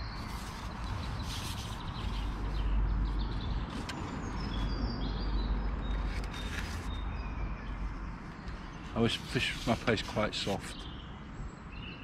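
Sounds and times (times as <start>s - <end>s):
small birds chirping and singing: 0.0s - 12.0s
fishing pole rustling: 8.5s - 10.8s.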